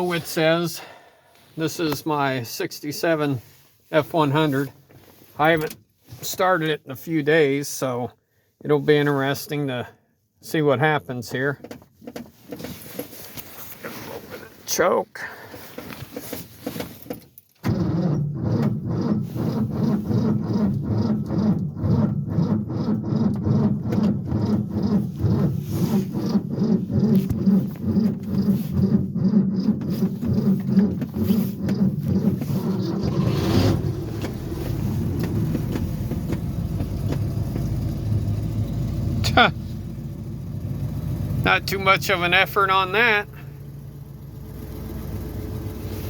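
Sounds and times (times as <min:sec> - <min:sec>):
engine starter cranking: 0:17.6 - 0:46.0
engine fast idle: 0:31.4 - 0:46.0.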